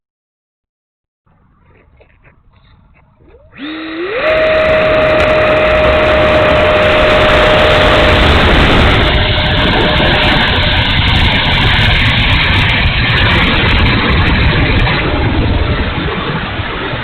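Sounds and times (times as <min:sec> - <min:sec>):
electric ducted fan whine: 0:01.3 - 0:17.0
rushing air: 0:01.3 - 0:17.0.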